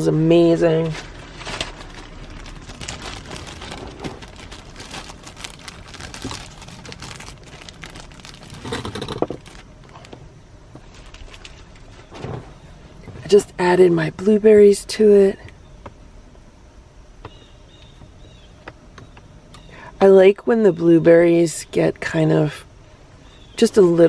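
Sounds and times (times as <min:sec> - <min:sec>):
plastic packaging crinkling: 0:00.8 - 0:12.9.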